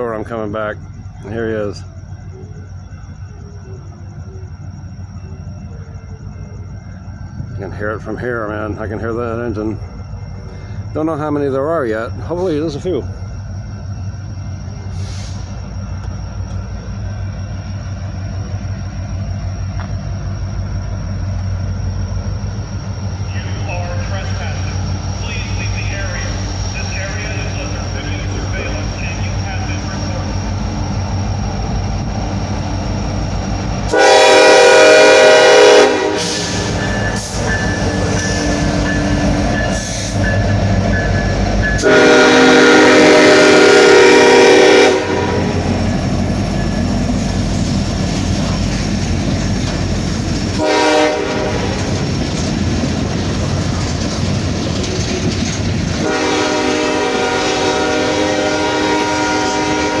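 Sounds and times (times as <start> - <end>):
locomotive engine rumble: 0.0 - 60.0
train air horn blasts: 33.9 - 38.9, 41.7 - 45.7, 50.6 - 51.8, 56.0 - 60.0.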